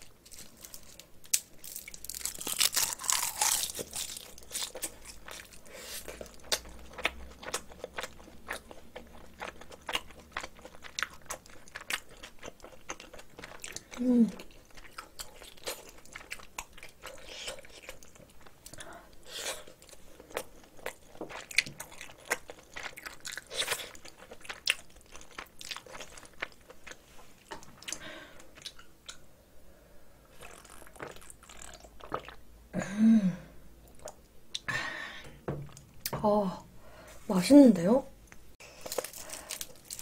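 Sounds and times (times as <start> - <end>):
person chewing with wet smacks: 3.1 - 18.8, 19.6 - 29.2, 30.4 - 32.4.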